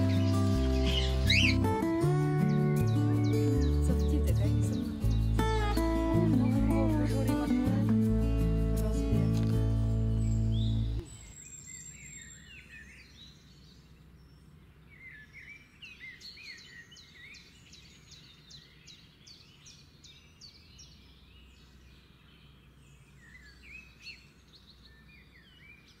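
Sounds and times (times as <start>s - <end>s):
faint songbird chirping: 0.0s - 26.0s
low outdoor background hum: 0.0s - 26.0s.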